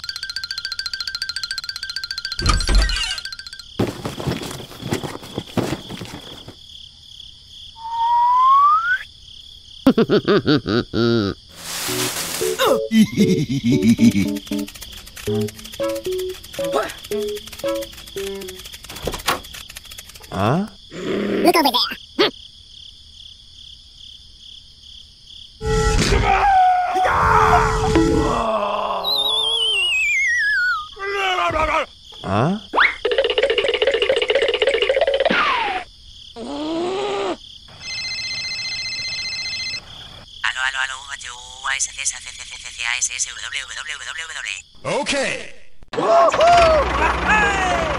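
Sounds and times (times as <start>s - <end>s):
insects chirping: 0.0s - 26.0s, 26.6s - 45.7s
rising whistle: 7.8s - 9.1s
faint pulsing chirping: 12.8s - 20.5s
cartoon vocal sound effects: 20.3s - 22.3s.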